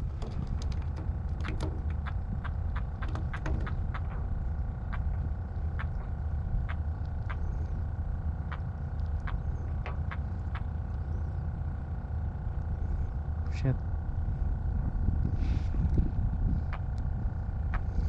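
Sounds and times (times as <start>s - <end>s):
sharp irregular ticks: 0.0s - 4.3s
boat engine rumbling: 0.0s - 18.0s.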